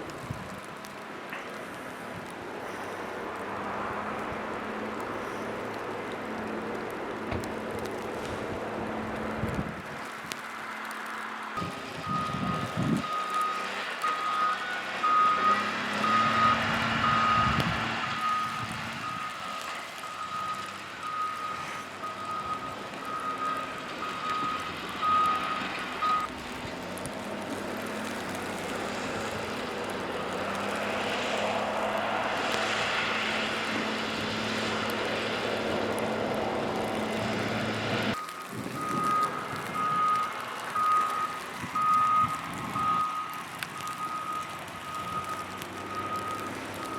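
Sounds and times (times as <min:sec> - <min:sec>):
traffic passing: 0:00.0 - 0:46.9
truck reversing alarm beeping: 0:11.6 - 0:26.3, 0:38.1 - 0:46.9.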